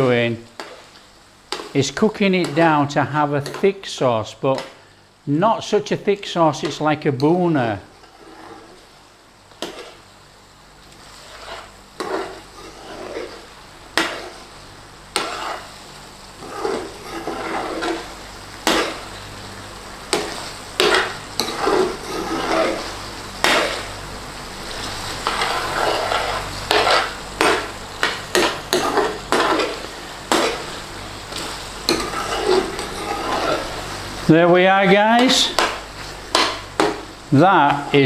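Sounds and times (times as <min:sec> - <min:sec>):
utensil scraping a pan: 0:00.0 - 0:03.8, 0:06.6 - 0:10.1, 0:10.9 - 0:38.0
sauce sizzling: 0:00.0 - 0:38.0
utensil clacking against pan: 0:20.1 - 0:23.9, 0:25.2 - 0:33.8, 0:35.2 - 0:37.0.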